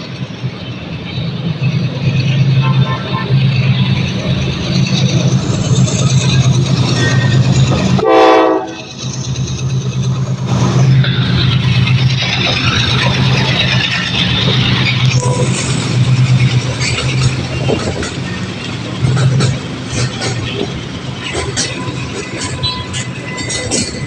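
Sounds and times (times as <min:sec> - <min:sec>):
train wheels rumbling on rails: 0:00.0 - 0:24.0
train horn blast: 0:02.6 - 0:03.7, 0:08.0 - 0:08.9, 0:15.2 - 0:15.6.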